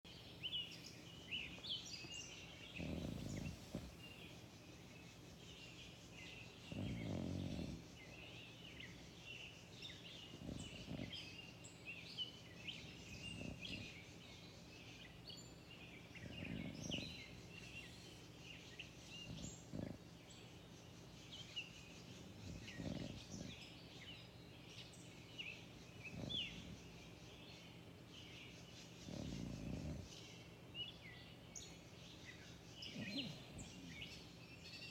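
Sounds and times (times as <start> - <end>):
songbirds chirping and trilling: 0.1 - 34.9.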